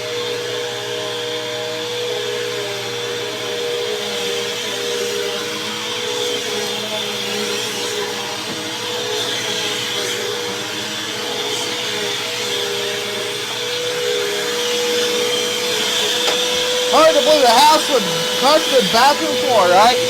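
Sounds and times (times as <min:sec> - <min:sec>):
vacuum cleaner running over carpet: 0:00.0 - 0:20.0.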